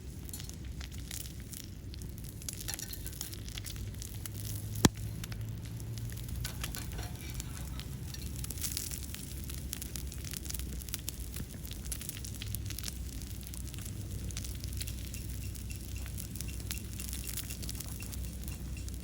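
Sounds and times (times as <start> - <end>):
wood fire crackling: 0.0 - 19.0
steak sizzling: 0.2 - 19.0
sharp snap of fire: 2.4 - 15.6.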